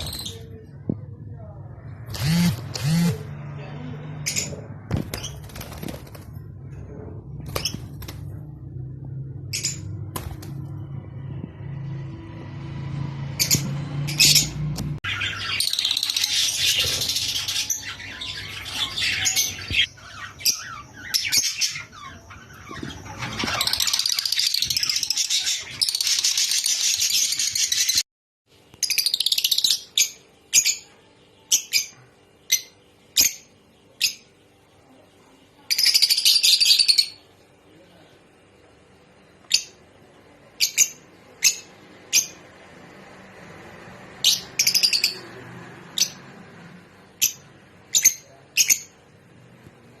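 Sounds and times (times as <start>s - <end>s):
lovebirds chattering: 2.1s - 3.3s, 14.2s - 28.0s.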